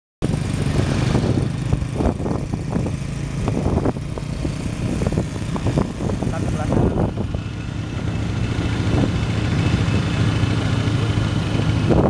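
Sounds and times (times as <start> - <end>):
motorcycle engine running: 0.2 - 12.0.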